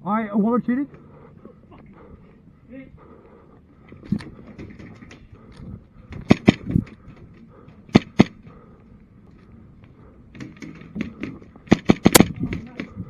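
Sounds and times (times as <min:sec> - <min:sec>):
airsoft pistol shots: 0:06.3 - 0:06.7, 0:07.9 - 0:08.4, 0:11.7 - 0:12.6.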